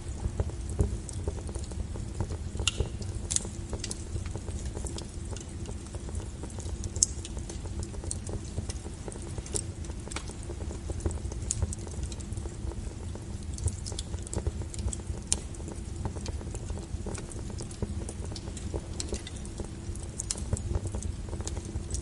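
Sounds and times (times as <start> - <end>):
firewood crackling and popping: 0.0 - 22.0
low rumble of flames: 0.0 - 22.0.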